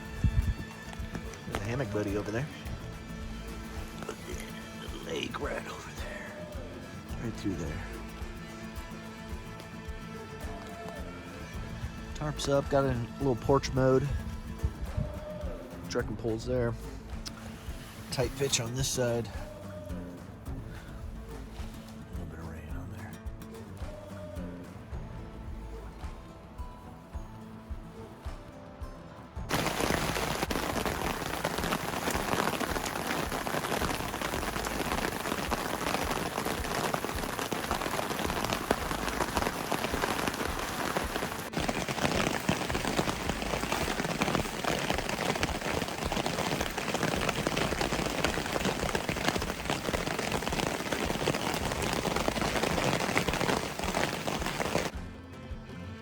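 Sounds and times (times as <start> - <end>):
rain falling: 0.0 - 22.1, 29.5 - 55.0.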